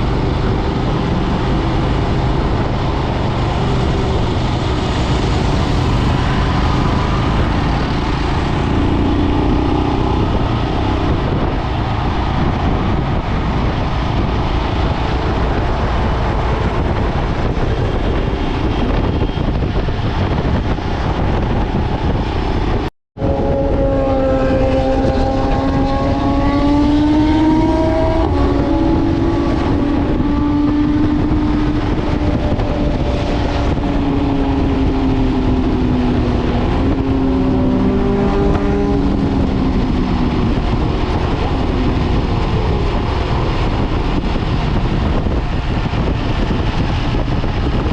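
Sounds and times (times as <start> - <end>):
motorcycle engine running: 0.0 - 22.4
road and wind noise: 0.0 - 47.9.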